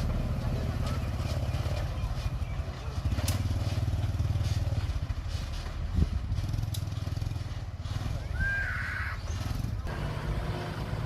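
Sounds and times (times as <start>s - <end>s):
bulldozer diesel engine running: 0.0s - 11.0s.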